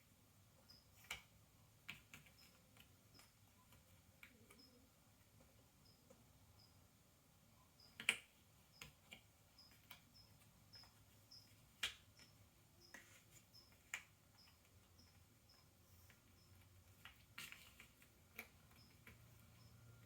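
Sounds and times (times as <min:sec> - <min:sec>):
faint high chirp: 0:00.6 - 0:01.2, 0:02.0 - 0:06.9, 0:07.5 - 0:20.0.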